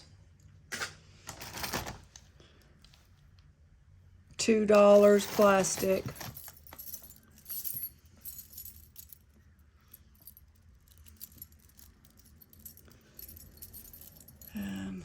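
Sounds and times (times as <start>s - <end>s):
metal jewelry clinking: 4.8s - 15.0s.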